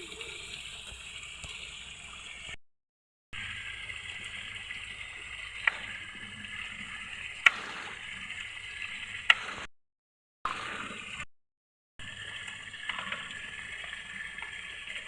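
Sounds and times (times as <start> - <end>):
running water: 0.0 - 2.6, 3.4 - 9.7, 12.0 - 15.0.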